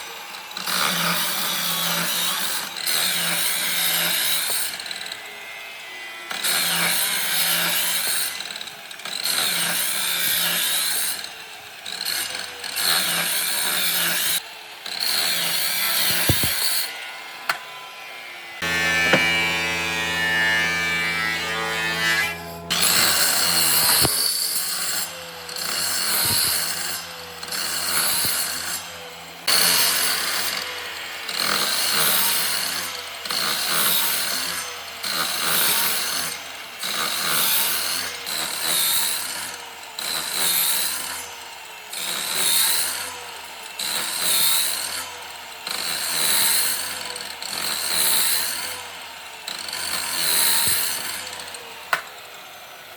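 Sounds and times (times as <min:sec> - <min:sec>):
power tool motor running: 0:03.0 - 0:36.3
tool working wood in strokes: 0:06.3 - 0:41.3, 0:45.7 - 0:52.6.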